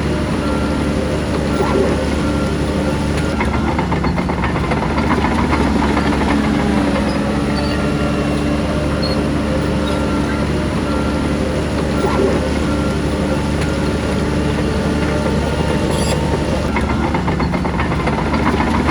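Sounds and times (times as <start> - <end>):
diesel machinery running: 0.0 - 18.9
short beeps: 7.0 - 13.4.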